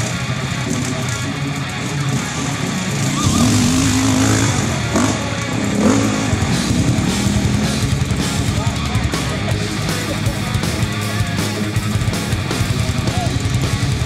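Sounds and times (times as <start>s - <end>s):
motorcycle engine revving: 0.0s - 14.0s
other motorcycles running: 0.0s - 14.0s.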